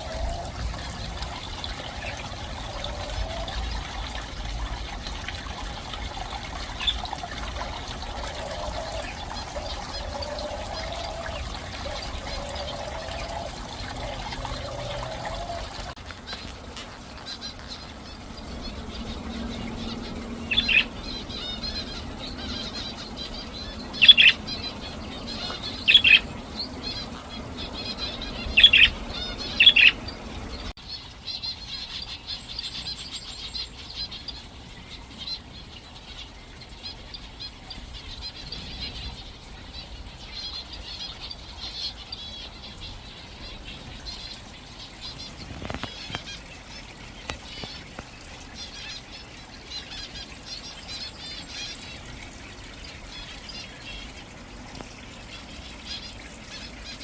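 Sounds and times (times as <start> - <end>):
birds chirping: 0.0 - 57.0
loud sharp bird calls: 5.8 - 30.7.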